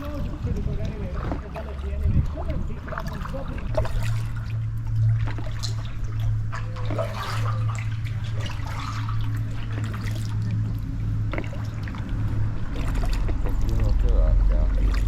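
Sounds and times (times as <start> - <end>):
paddles splashing water: 0.0 - 15.0
steady low hum: 0.0 - 15.0.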